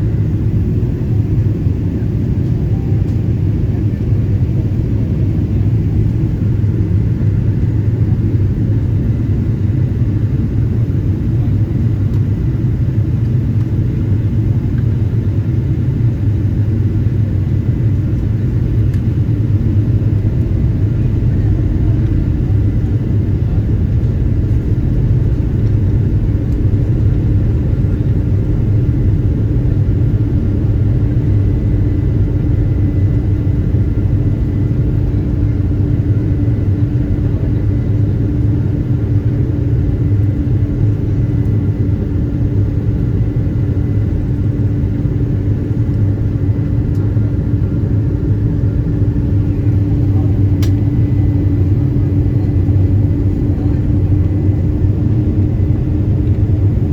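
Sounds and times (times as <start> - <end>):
airplane engines and airflow rumble: 0.0 - 56.9
constant cabin hum: 0.0 - 56.9.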